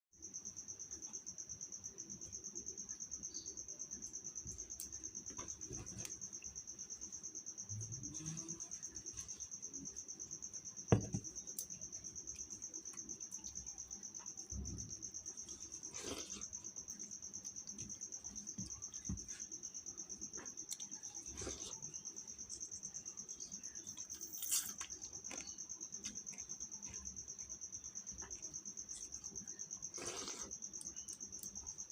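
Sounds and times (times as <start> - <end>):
cricket chirping: 0.2 - 31.9
soft dull thumps: 10.9 - 11.3.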